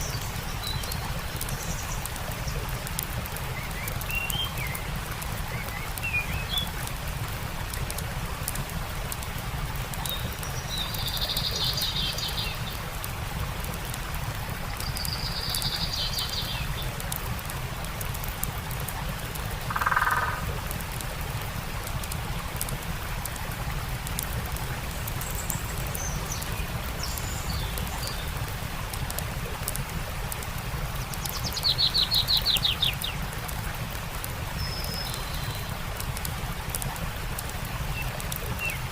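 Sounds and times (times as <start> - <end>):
songbirds calling: 0.0 - 6.8, 10.0 - 12.9, 14.7 - 17.0, 19.6 - 20.6, 24.8 - 28.6, 30.9 - 33.3, 34.2 - 35.8, 37.9 - 38.9
campfire crackling: 0.0 - 38.9
stream rushing: 0.0 - 38.9
bird trilling: 19.7 - 20.4.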